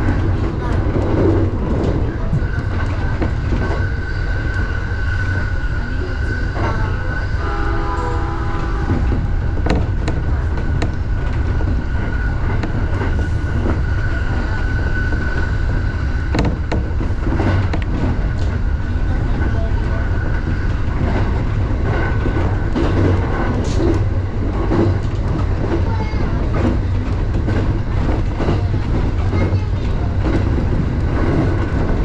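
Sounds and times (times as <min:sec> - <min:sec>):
train rumble: 0:00.0 - 0:32.0
wheels clicking on track: 0:08.0 - 0:32.0.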